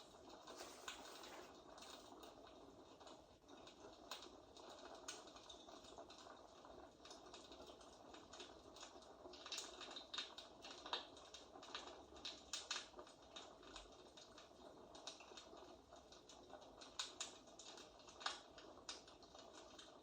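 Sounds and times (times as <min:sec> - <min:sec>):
fireplace crackling: 0:00.0 - 0:02.3.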